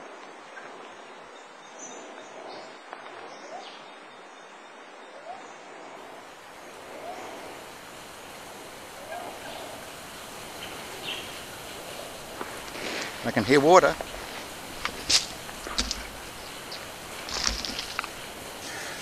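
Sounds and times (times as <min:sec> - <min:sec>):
steady hiss: 0:00.0 - 0:19.0
bird rising calls: 0:05.2 - 0:19.0.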